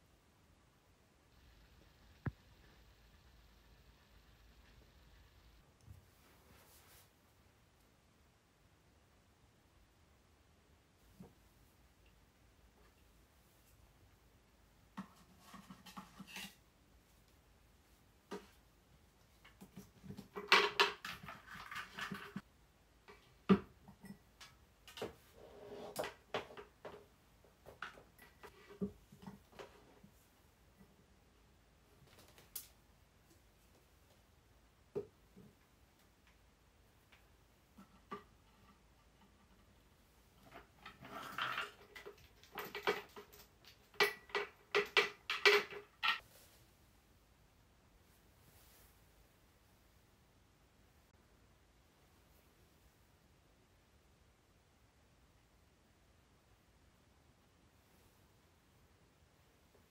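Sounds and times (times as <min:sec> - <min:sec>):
rustling or scraping: 0:06.0 - 0:07.3, 0:14.9 - 0:22.5, 0:23.9 - 0:31.0, 0:37.5 - 0:47.0, 0:48.0 - 0:49.8
handling clicks and knocks: 0:37.7 - 0:46.2.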